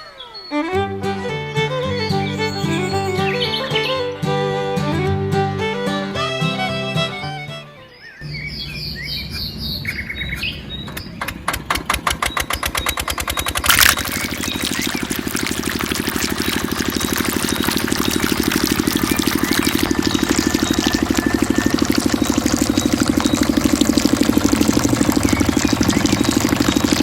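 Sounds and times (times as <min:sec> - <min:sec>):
birds chirping: 0:01.5 - 0:04.3, 0:07.8 - 0:27.0
small engine starting and running: 0:08.3 - 0:27.0.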